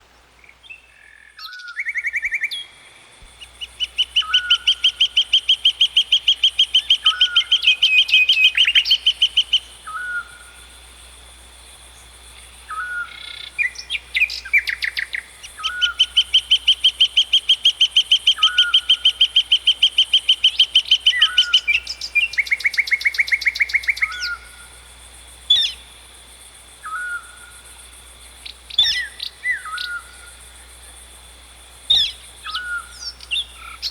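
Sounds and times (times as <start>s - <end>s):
bird trilling: 3.3s - 10.4s, 12.7s - 19.8s.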